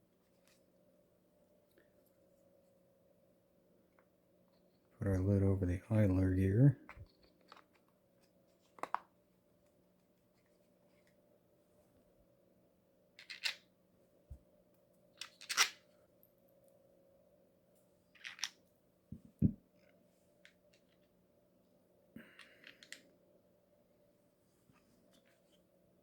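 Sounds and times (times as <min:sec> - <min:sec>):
faint steady hum: 0:00.0 - 0:26.0
small metal parts clicking: 0:13.2 - 0:13.6, 0:15.2 - 0:15.8, 0:18.2 - 0:18.5, 0:22.4 - 0:23.0.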